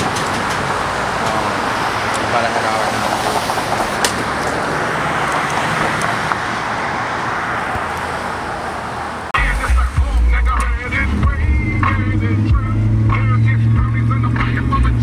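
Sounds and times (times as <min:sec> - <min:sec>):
traffic road noise: 0:00.0 - 0:15.0
loud deep bass sound: 0:09.4 - 0:15.0.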